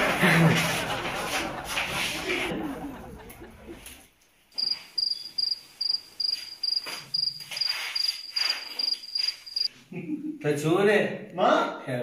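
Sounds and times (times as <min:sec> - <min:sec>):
cricket chirping: 0:04.6 - 0:09.7.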